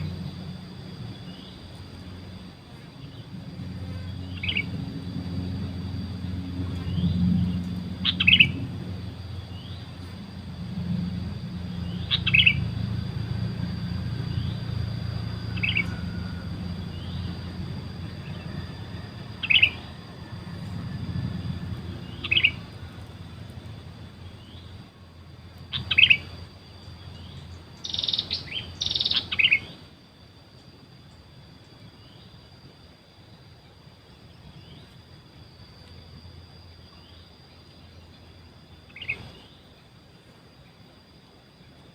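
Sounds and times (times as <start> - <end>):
steady high-pitched hum: 0.0 - 41.9
bird chirping: 3.0 - 10.5, 11.3 - 24.9, 25.7 - 29.8, 38.9 - 39.7.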